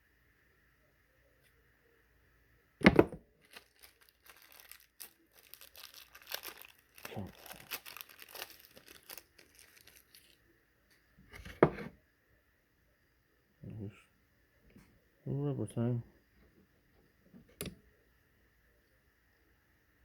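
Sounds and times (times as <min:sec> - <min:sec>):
plastic packaging tearing and crinkling: 0:03.4 - 0:10.4.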